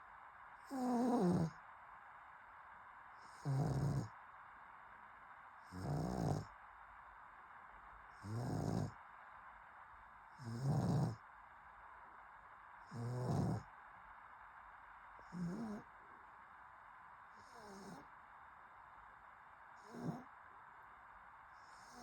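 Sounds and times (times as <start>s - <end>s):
dog snoring: 0.7s - 1.6s, 3.2s - 4.1s, 5.6s - 6.5s, 8.2s - 9.0s, 10.4s - 11.2s, 12.9s - 13.7s, 15.2s - 15.9s, 17.4s - 18.1s, 19.8s - 20.3s, 21.6s - 22.0s.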